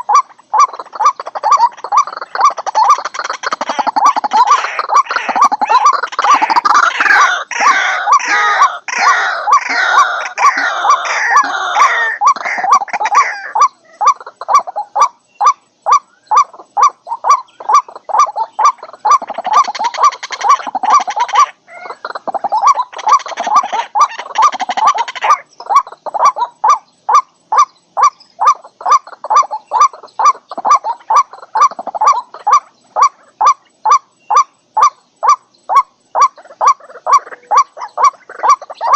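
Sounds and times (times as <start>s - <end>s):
waterhens calling: 0.0s - 38.9s.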